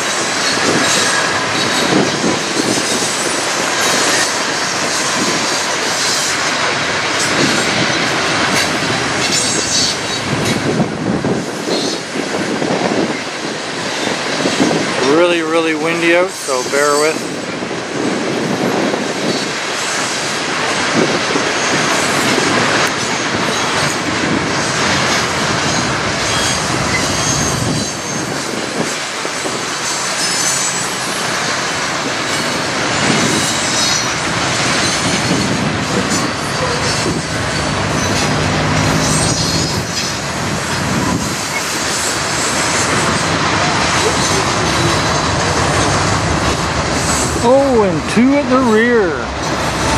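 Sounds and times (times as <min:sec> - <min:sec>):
train wheels clattering over rails: 0:00.0 - 0:48.1
wind buffeting microphone: 0:00.0 - 0:49.9
wheel squeal: 0:25.6 - 0:28.4, 0:29.8 - 0:31.2, 0:34.7 - 0:40.2.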